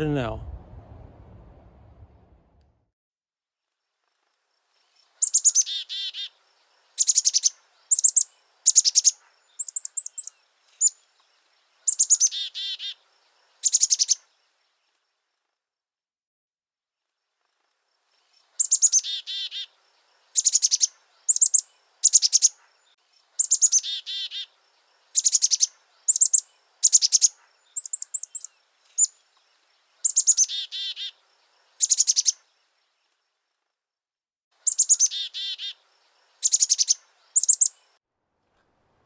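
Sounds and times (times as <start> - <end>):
songbird singing: 4.8 - 15.1, 18.2 - 33.4, 34.6 - 38.0.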